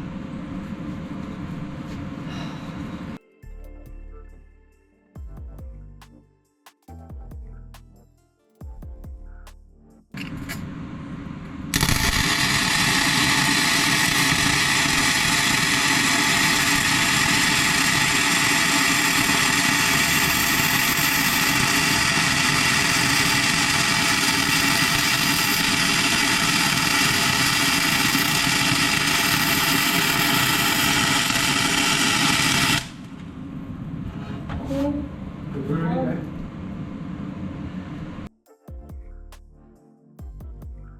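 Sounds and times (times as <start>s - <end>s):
machine running with hum: 0.0s - 3.2s, 10.2s - 38.3s.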